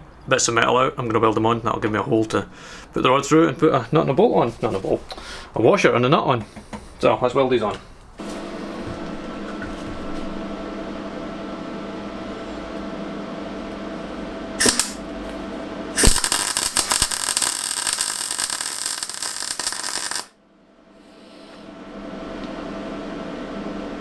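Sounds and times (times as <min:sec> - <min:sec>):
steady hum: 0:10.3 - 0:24.0
welding arc crackle: 0:14.6 - 0:15.0, 0:16.0 - 0:20.3.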